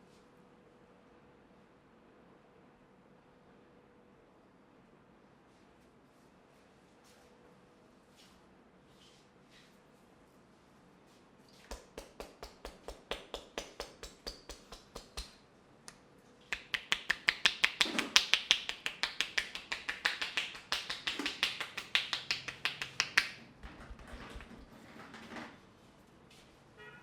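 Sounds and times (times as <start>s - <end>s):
sharp taps: 11.7s - 15.4s, 16.5s - 24.1s.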